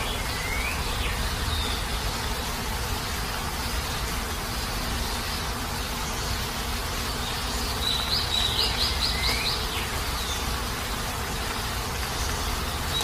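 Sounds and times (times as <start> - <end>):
bird chirping: 0.0 - 13.0
heavy rain hissing: 0.0 - 13.0.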